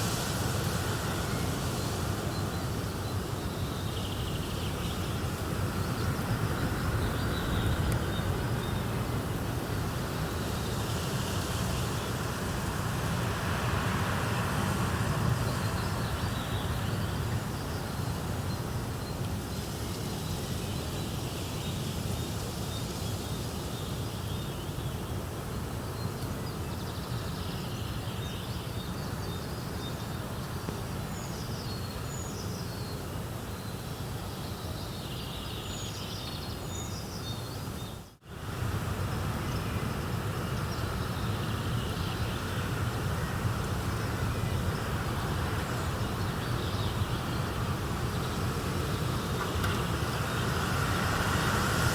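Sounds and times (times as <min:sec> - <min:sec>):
small birds chirping: 0:00.0 - 0:22.9
rushing nature ambience: 0:00.0 - 0:51.9.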